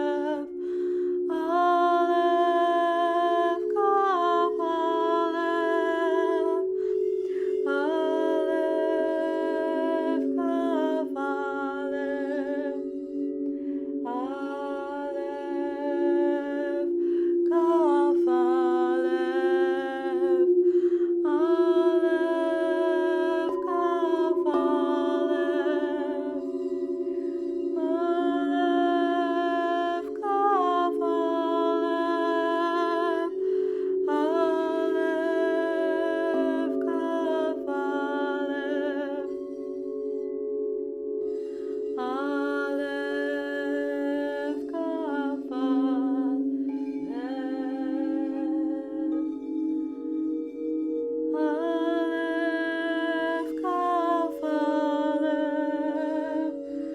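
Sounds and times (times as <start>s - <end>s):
woman's wordless held notes: 0.0s - 39.3s
singing bowls droning: 0.0s - 56.9s.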